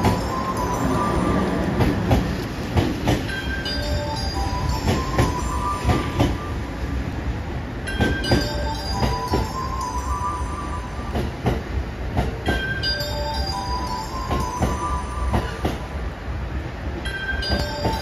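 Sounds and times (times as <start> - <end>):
wheels clacking over rail joints: 0.0 - 6.4, 11.1 - 15.9, 17.0 - 18.0
train rumble: 0.0 - 18.0.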